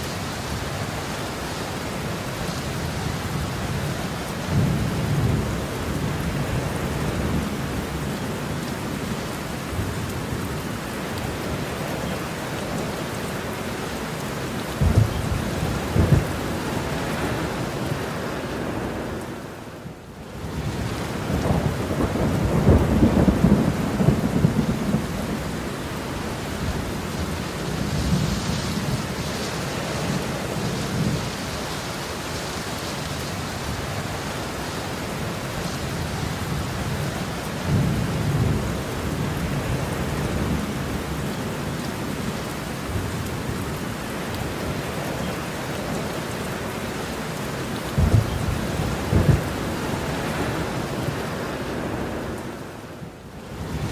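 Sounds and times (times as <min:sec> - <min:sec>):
heavy rain pouring: 0:00.0 - 0:53.9
sharp thunderclap: 0:14.8 - 0:16.4, 0:48.0 - 0:49.7
thunder rumbling: 0:14.8 - 0:19.0, 0:20.5 - 0:31.4, 0:47.9 - 0:51.3.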